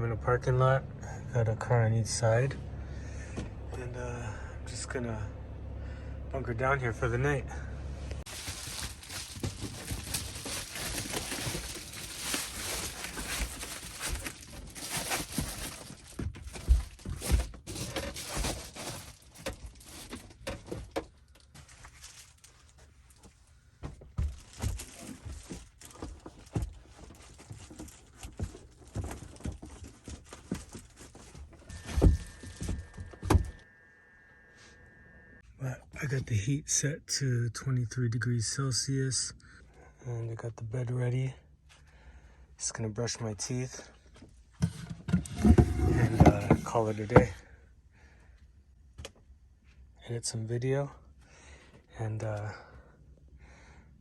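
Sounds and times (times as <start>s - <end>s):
rustling and crinkling: 8.2s - 33.6s, 44.0s - 47.4s
faint steady high tone: 31.7s - 35.4s.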